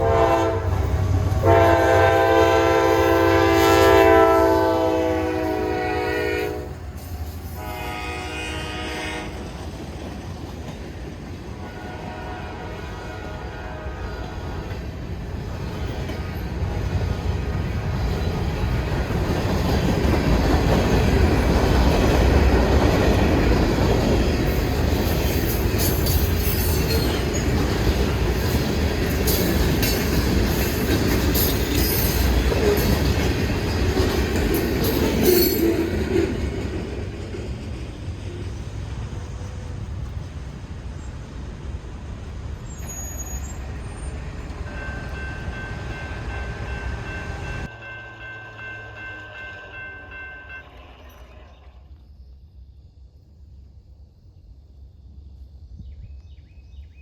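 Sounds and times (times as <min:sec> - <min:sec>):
train rumbling past: 0:00.0 - 0:57.0
train wheel squeal: 0:24.3 - 0:36.6, 0:42.6 - 0:47.7, 0:48.3 - 0:52.0.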